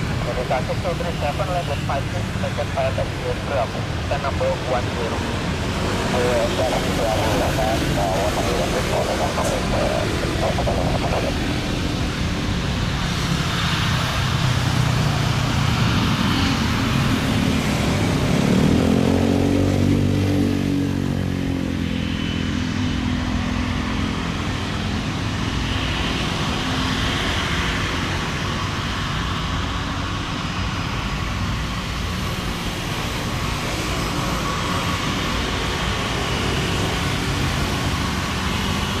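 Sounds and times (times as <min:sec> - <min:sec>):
passing vehicles engine noise: 0:00.0 - 0:39.0.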